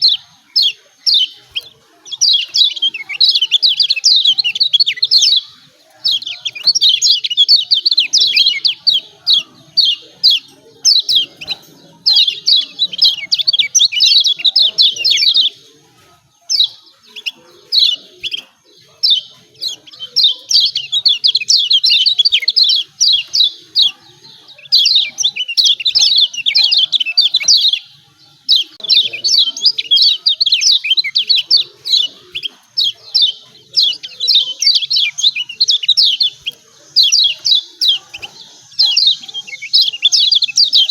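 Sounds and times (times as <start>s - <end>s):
bird rapid chirping song: 0.0s - 40.9s.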